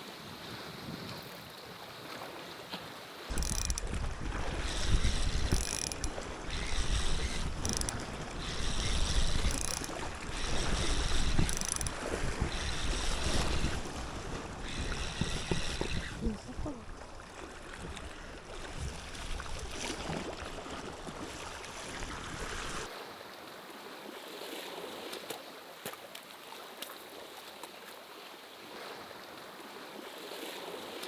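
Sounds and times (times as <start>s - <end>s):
sea waves: 0.0s - 31.0s
wind buffeting microphone: 3.3s - 21.3s.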